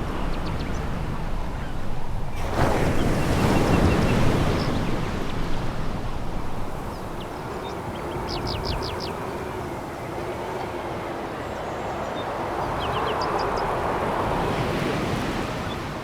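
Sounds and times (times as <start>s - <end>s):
waves washing over pebbles: 1.3s - 7.7s.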